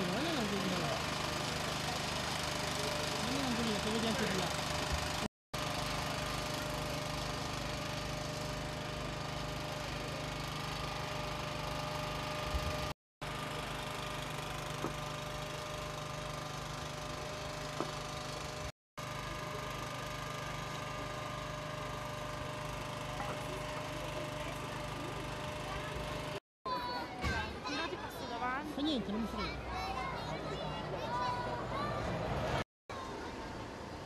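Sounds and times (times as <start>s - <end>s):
engine idling: 0.0s - 26.4s.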